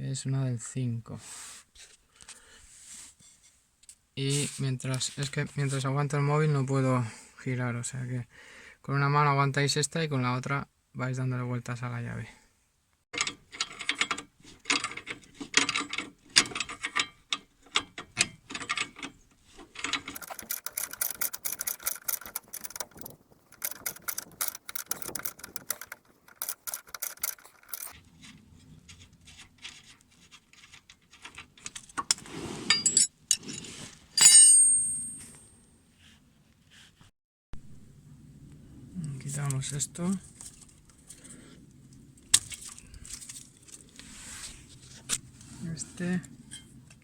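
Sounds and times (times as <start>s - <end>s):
ratchet wrench clicking: 20.2s - 28.0s.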